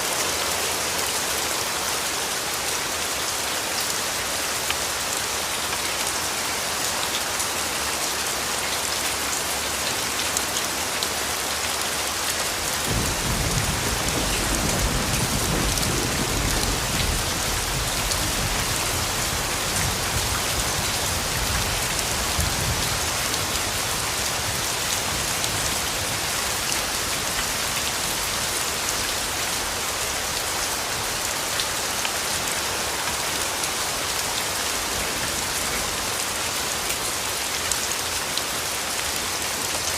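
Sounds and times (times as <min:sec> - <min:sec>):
rain pattering: 0:00.0 - 0:39.9
distant thunder rumbling: 0:12.9 - 0:19.1.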